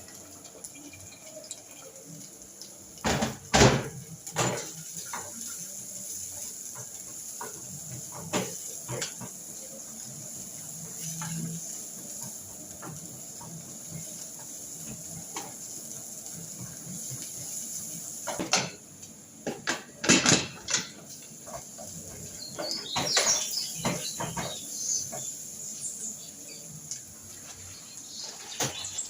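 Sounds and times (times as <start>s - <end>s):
steady background noise: 0.0s - 29.0s
pots and pans clattering: 3.0s - 17.3s, 18.2s - 25.6s.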